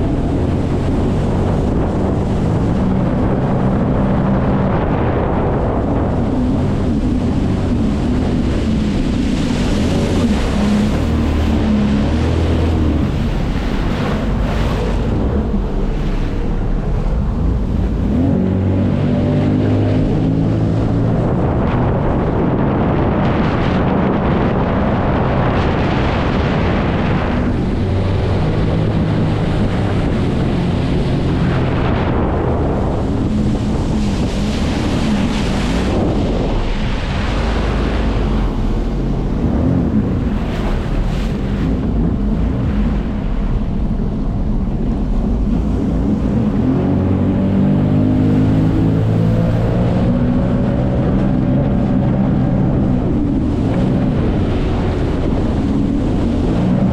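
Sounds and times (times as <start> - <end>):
jet ski engine: 0.0 - 56.9
rushing water: 0.0 - 56.9
wind noise on microphone: 0.0 - 56.9.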